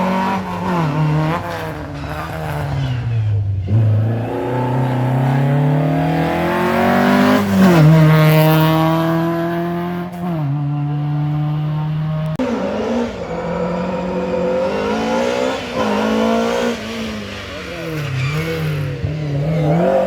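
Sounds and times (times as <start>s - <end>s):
rally car engine revving: 0.0s - 20.0s.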